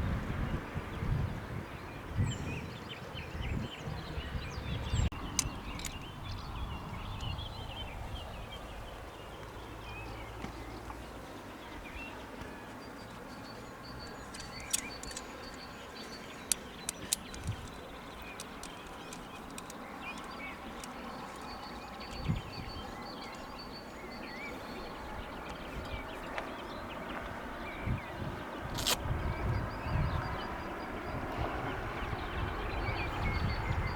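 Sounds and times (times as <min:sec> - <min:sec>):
small birds chirping: 0:01.9 - 0:33.9
sharp clicks: 0:05.3 - 0:06.1, 0:14.2 - 0:15.7, 0:16.3 - 0:22.3.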